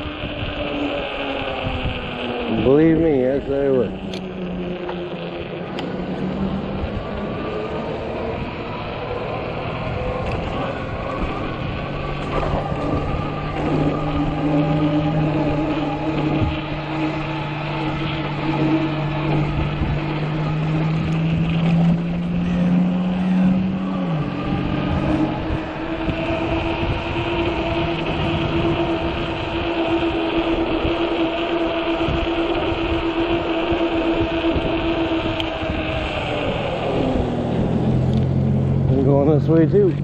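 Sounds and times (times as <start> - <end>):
bike tires rolling over slush: 0.0 - 40.0
faint steady whine: 0.0 - 40.0
wind: 0.0 - 40.0.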